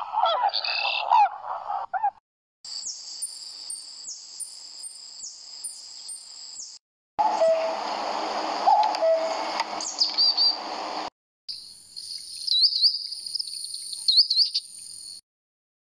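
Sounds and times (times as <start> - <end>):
cuckoo call: 7.2 - 7.8, 8.7 - 10.6
high bird chirps: 9.0 - 10.6, 11.5 - 15.2
weaverbird chirping and chattering: 9.8 - 10.6, 12.0 - 14.8.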